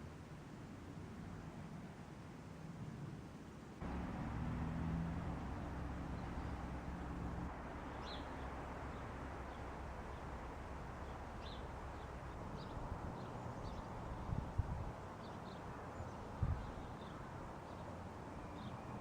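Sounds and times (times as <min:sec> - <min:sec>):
low hum: 0:03.8 - 0:14.5.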